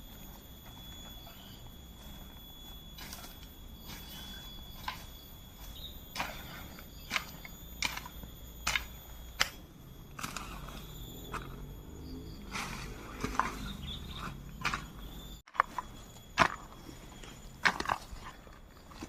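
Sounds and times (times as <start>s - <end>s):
steady high-pitched drone: 0.0s - 19.0s.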